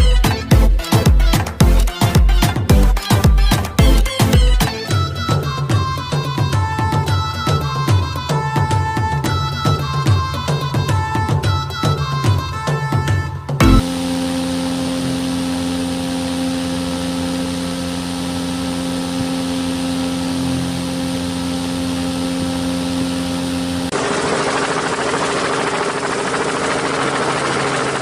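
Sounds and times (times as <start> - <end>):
small motor whine: 13.6 - 28.0.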